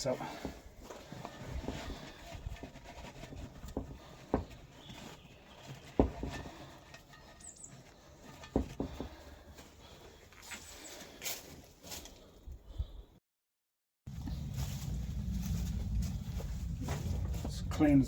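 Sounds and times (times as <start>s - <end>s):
light irregular clattering: 0.2s - 9.6s.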